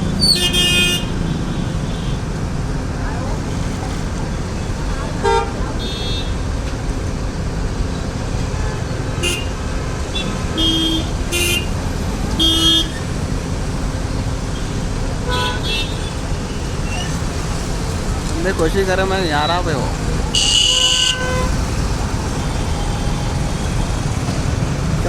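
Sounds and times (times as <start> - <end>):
road traffic: 0.0 - 25.0
vehicle horn toots: 0.2 - 1.1, 9.2 - 9.5, 10.2 - 11.7, 12.4 - 13.0, 15.2 - 16.0, 20.3 - 21.6.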